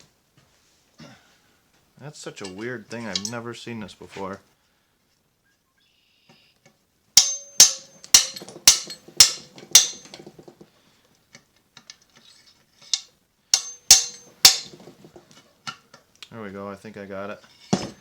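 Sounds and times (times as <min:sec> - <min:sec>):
hammer ringing on steel: 0:07.2 - 0:10.1, 0:13.6 - 0:14.8.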